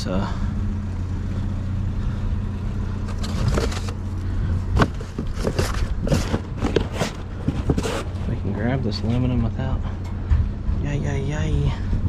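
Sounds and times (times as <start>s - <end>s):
steady low hum: 0.0s - 12.0s
metal scrap clattering: 4.8s - 8.4s.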